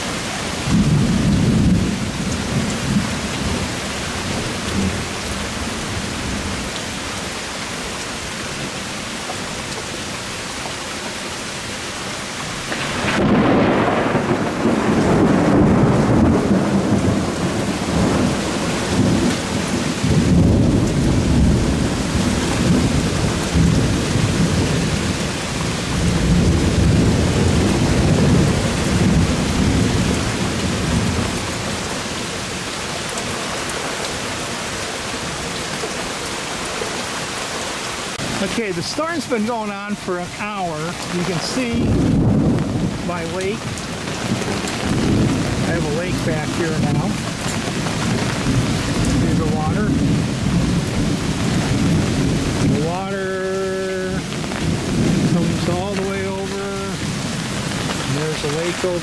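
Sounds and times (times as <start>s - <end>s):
heavy rain hissing: 0.0s - 59.0s
rolling thunder: 0.6s - 6.7s, 12.7s - 32.2s, 40.7s - 59.0s.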